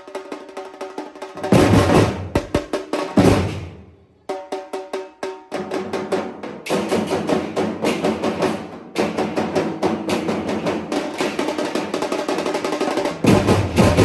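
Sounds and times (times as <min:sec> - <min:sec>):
music with fast drumming: 0:00.0 - 0:14.0
heavy low drums: 0:01.5 - 0:03.9, 0:13.2 - 0:14.0.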